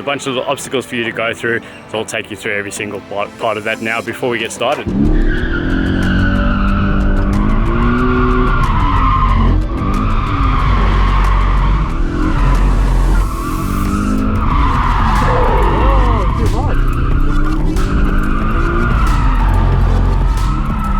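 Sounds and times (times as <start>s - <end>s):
car engine revving: 4.8s - 20.9s
tyres squealing: 13.8s - 20.9s.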